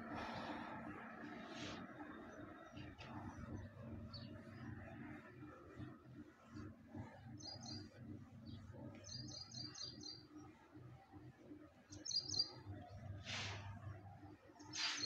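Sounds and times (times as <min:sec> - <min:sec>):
small bird chirping: 0:11.9 - 0:12.7
eraser rubbing a whiteboard: 0:13.2 - 0:13.6, 0:14.8 - 0:15.0.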